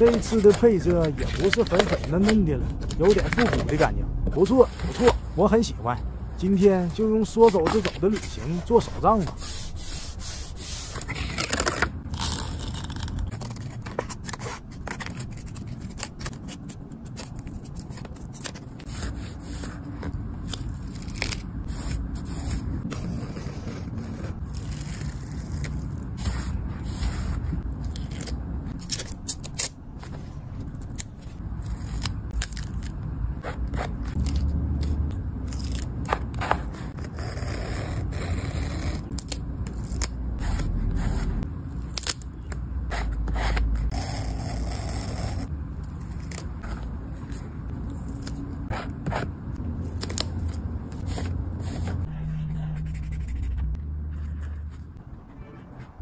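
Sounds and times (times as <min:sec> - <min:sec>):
scissors snipping paper: 0:00.0 - 0:03.8
paper scraping and rustling: 0:00.0 - 0:05.3, 0:06.6 - 0:41.5, 0:49.9 - 0:55.0.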